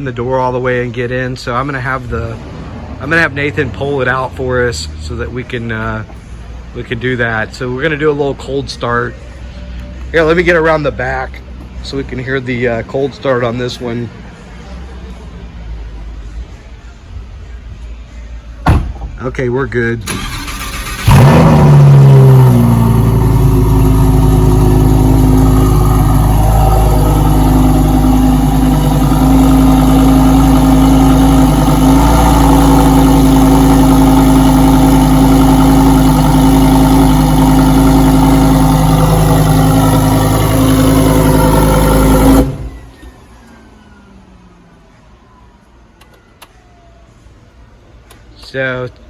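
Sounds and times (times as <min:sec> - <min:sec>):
car engine fast idle: 0:20.0 - 0:44.1.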